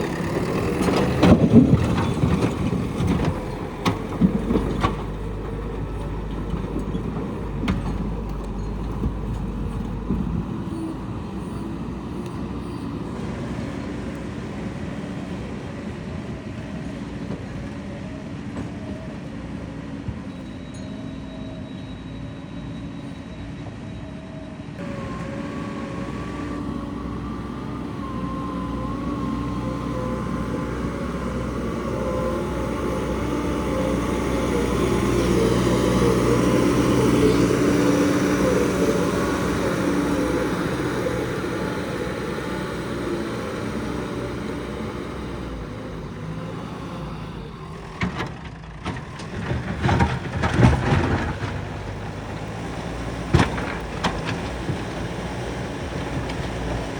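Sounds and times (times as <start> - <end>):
heavy vehicle engine under load: 0.0 - 56.9
wavering whine: 24.8 - 46.2.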